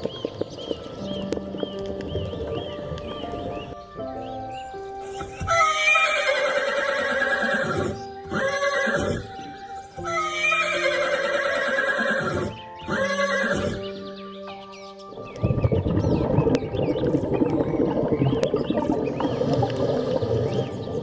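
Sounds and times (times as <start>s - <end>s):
background music: 0.0s - 21.0s
horse whinnying: 5.4s - 9.4s, 10.0s - 13.8s.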